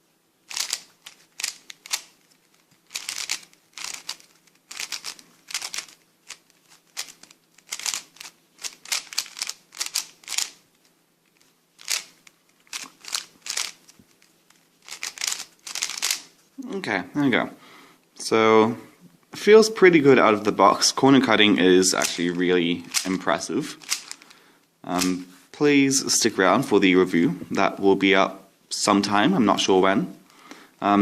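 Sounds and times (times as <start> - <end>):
plastic speed cube clacking: 0.5 - 10.6, 11.8 - 13.8, 14.8 - 16.3, 23.8 - 24.2.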